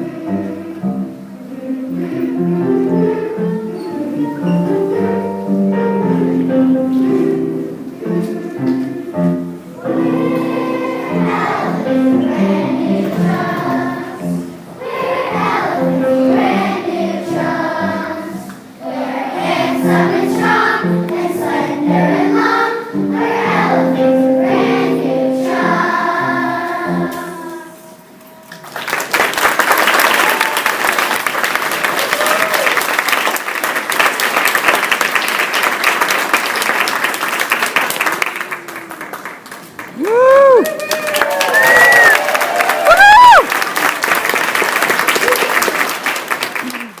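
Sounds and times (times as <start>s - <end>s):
children singing together: 0.0s - 28.1s
audience clapping: 28.5s - 47.0s.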